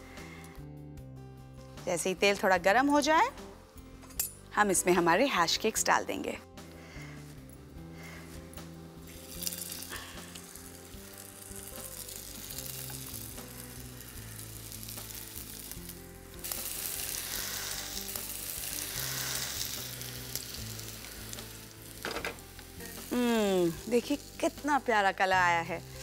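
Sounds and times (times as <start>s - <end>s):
food sizzling in hot oil: 8.9s - 26.0s.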